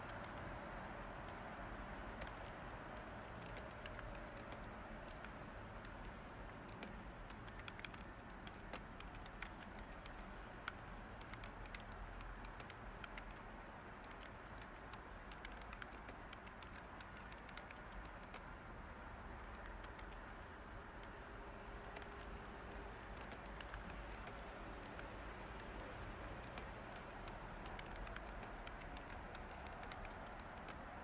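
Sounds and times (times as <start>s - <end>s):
typing on computer keyboard: 0.0s - 0.6s, 1.2s - 18.7s, 19.3s - 21.2s, 21.8s - 31.0s
white noise hiss: 0.0s - 31.0s.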